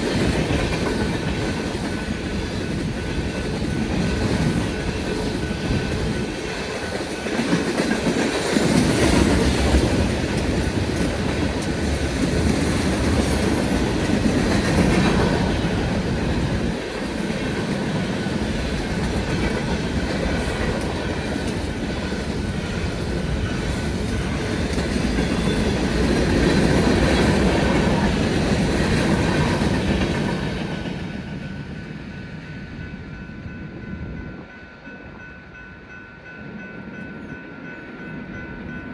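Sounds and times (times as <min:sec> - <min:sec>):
freight train wheels clacking: 0:00.0 - 0:38.9.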